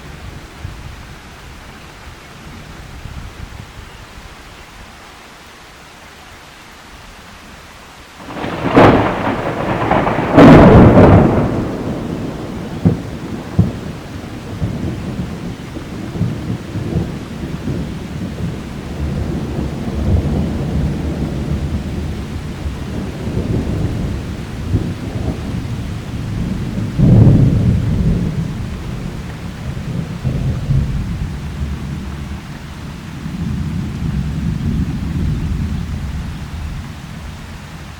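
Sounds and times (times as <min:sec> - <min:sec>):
rain hissing: 0:00.0 - 0:37.9
thunder cracks and rumble: 0:08.2 - 0:37.3.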